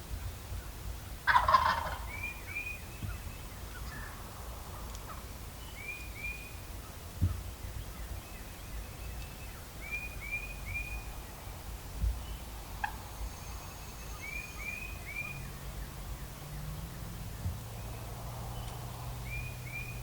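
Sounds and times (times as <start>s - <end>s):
turkey calling: 1.2s - 4.2s, 4.8s - 5.3s, 12.8s - 13.0s.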